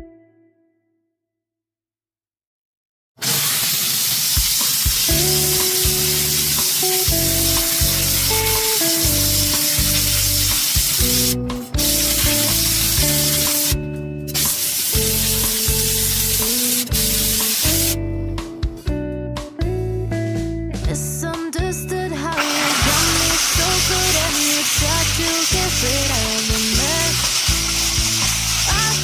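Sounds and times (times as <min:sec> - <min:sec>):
steam cleaner hissing: 0:03.2 - 0:18.0, 0:22.4 - 0:29.0
instrumental background music: 0:04.4 - 0:29.0.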